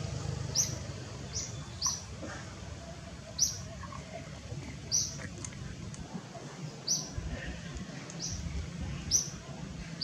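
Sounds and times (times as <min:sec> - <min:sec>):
low steady background noise: 0:00.0 - 0:10.0
small bird chirping: 0:00.5 - 0:02.1, 0:04.9 - 0:05.2, 0:08.1 - 0:08.5, 0:09.1 - 0:09.4.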